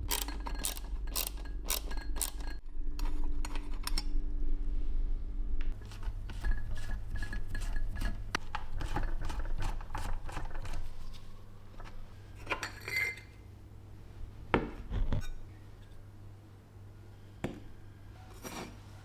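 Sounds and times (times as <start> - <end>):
small metal parts clinking: 0.0 - 2.6
low steady hum: 0.0 - 8.6.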